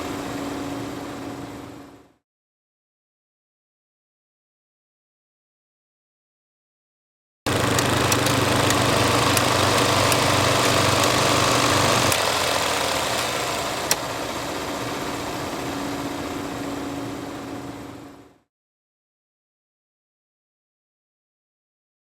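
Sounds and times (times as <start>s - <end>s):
film projector whirring and clicking: 7.5s - 16.6s.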